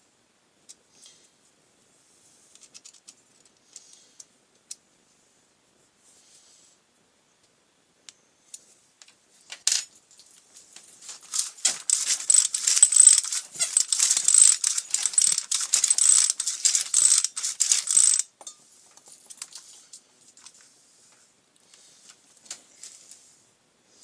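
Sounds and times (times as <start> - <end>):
metal tools rattling and clicking: 10.9 - 19.7.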